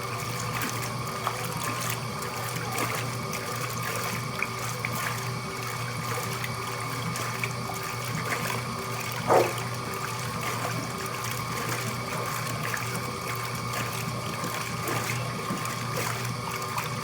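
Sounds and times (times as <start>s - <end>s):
water running in washing machine: 0.0s - 17.0s
steady hum: 9.1s - 10.2s.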